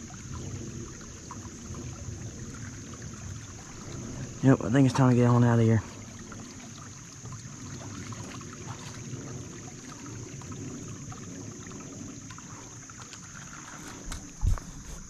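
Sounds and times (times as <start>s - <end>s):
creek running: 0.0s - 15.0s
high insect buzz: 5.8s - 15.0s.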